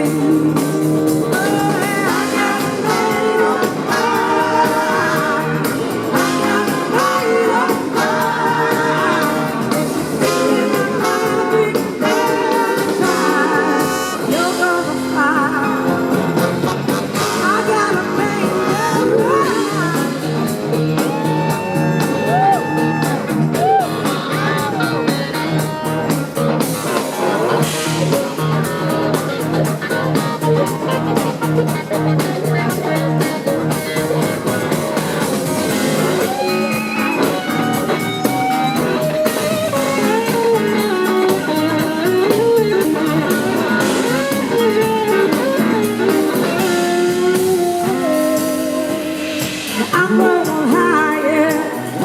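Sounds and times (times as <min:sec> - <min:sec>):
blues-rock band playing: 0:00.0 - 0:52.0
electric guitar lead: 0:00.0 - 0:52.0.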